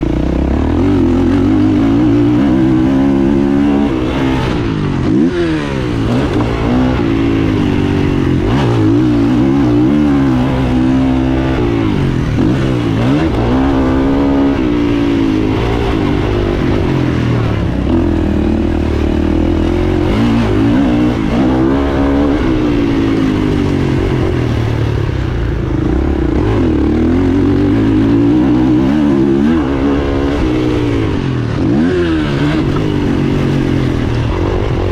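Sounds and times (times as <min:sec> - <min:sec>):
motocross bike engine revving: 0:00.0 - 0:34.9.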